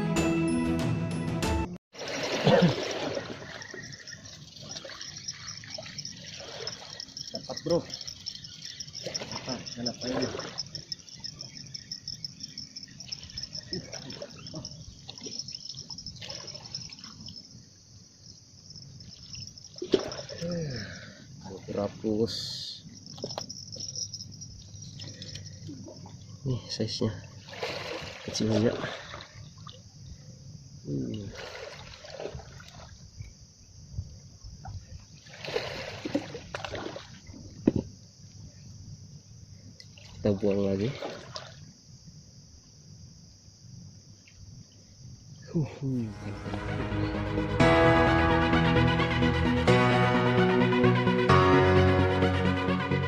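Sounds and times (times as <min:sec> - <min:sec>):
water splashing and trickling: 0:01.9 - 0:17.8, 0:18.6 - 0:30.2, 0:31.0 - 0:33.3, 0:34.6 - 0:37.6, 0:39.8 - 0:41.8
insects chirring: 0:02.0 - 0:47.6.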